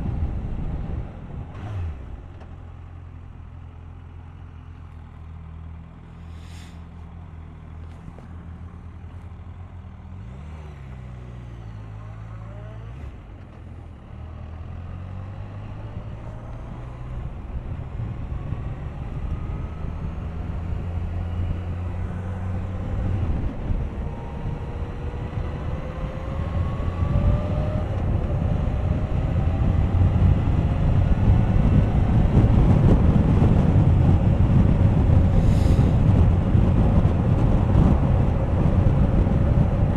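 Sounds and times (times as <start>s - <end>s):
motorcycle engine accelerating: 5.6s - 39.9s
wind rush: 15.8s - 39.9s.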